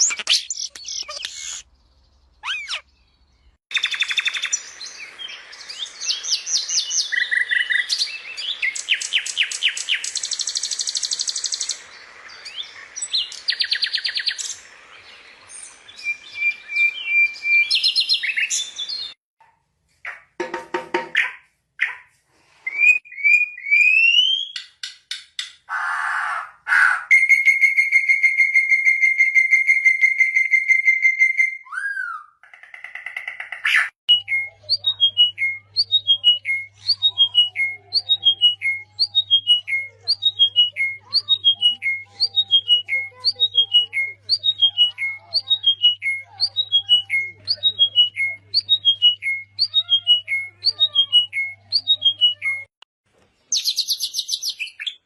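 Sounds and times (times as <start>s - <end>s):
bird chirping phrase: 0.0s - 19.2s, 33.8s - 52.7s
bird whistles: 2.4s - 2.8s.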